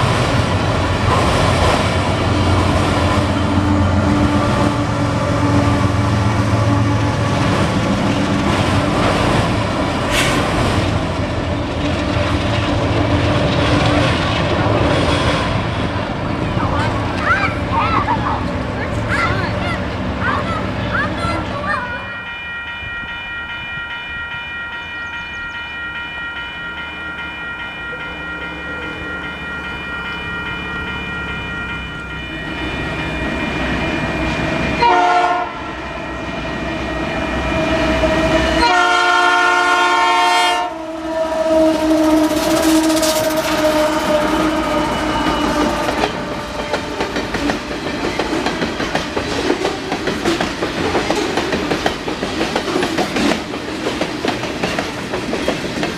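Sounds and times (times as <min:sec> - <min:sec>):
train rumbling past: 0:00.0 - 0:55.9
train horn blasts: 0:02.5 - 0:07.6, 0:34.1 - 0:36.3, 0:37.1 - 0:47.2.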